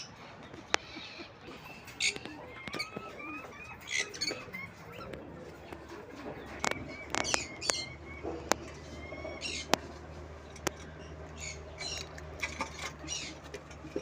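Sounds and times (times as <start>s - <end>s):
birds chirping and squawking: 0.0s - 14.0s
steady low hum: 0.0s - 14.0s
sharp clicks: 0.5s - 1.1s, 6.5s - 8.7s.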